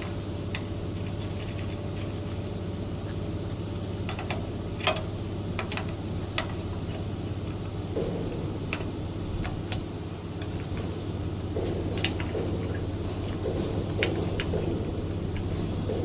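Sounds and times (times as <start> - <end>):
low machinery hum: 0.0 - 16.0
tools clicking and knocking: 11.6 - 16.0.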